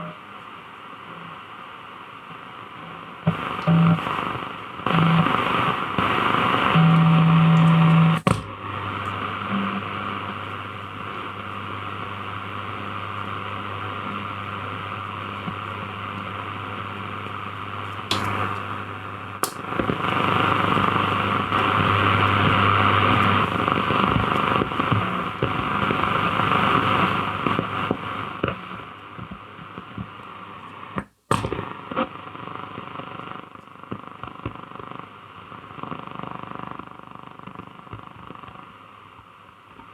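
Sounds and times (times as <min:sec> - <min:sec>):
radio static and hiss: 0:00.0 - 0:39.9
single clicks: 0:19.4 - 0:19.7.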